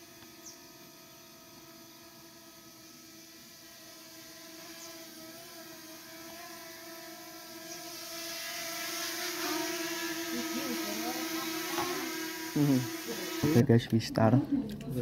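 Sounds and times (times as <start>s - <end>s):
drone propellers whirring: 0.0s - 13.7s.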